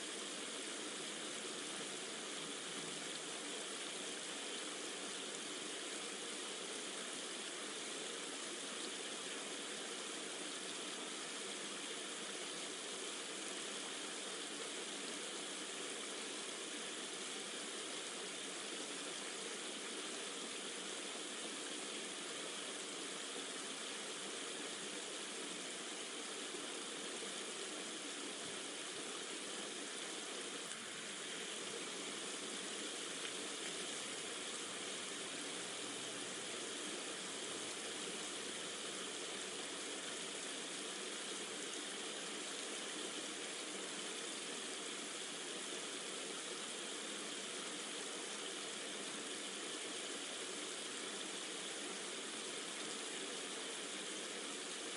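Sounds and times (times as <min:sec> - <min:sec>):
rushing water hiss: 0:00.0 - 0:54.9.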